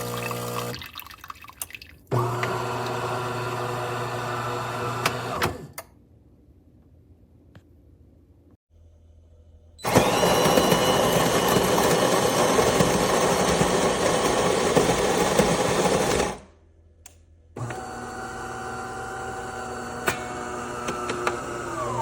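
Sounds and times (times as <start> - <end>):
espresso machine grinding beans: 0.0 - 0.8, 2.2 - 5.4, 9.8 - 16.3, 17.6 - 22.0.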